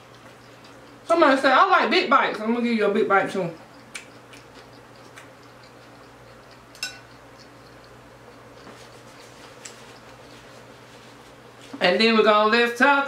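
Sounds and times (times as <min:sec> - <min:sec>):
faint chewing: 0:00.0 - 0:01.4, 0:02.3 - 0:11.8
wet mouth clicks: 0:03.6 - 0:10.2
sharp clink with ring: 0:06.8 - 0:07.1.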